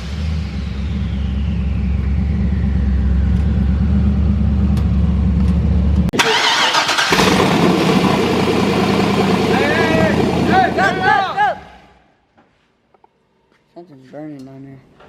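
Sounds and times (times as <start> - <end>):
rushing noise: 0.0 - 4.6
car engine idling: 0.0 - 11.8.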